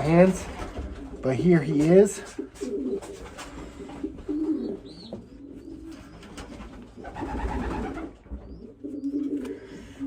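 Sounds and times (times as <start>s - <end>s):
pigeons cooing: 2.2s - 10.0s.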